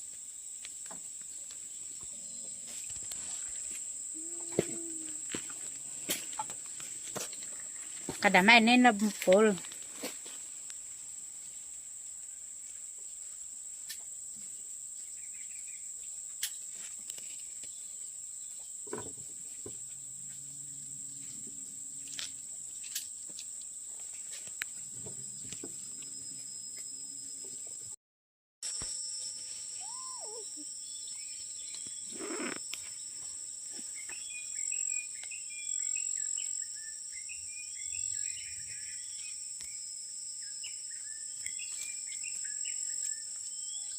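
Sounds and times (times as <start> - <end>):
insects droning: 0.0 - 28.0, 28.7 - 43.9
short falling cry: 29.8 - 30.6.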